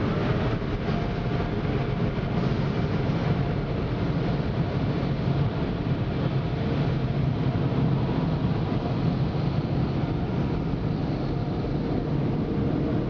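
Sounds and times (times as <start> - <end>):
car wash machinery running: 0.0 - 13.0.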